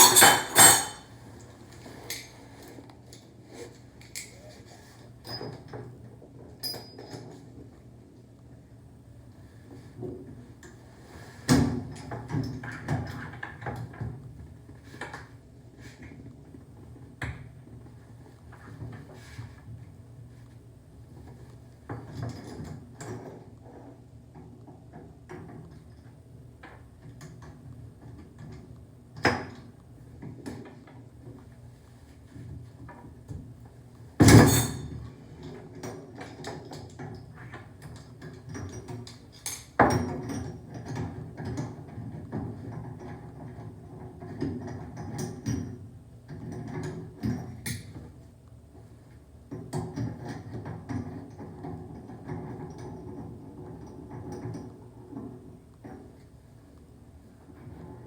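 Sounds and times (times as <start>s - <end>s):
loud metal clanks: 0.0s - 1.1s
tools and metal parts clicking: 0.0s - 1.1s.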